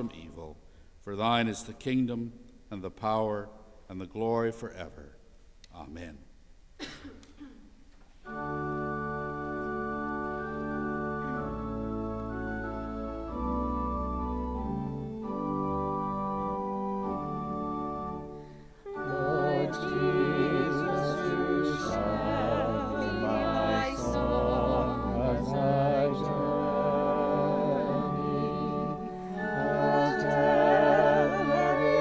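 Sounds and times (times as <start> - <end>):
organ playing chords: 8.2 - 32.0
singing with strong vibrato: 18.9 - 32.0.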